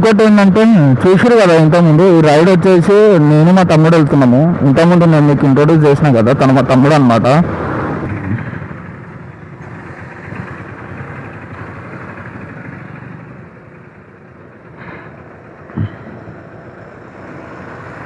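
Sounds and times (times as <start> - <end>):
road and wind noise: 0.0 - 18.0
motorcycle engine running: 7.5 - 18.0.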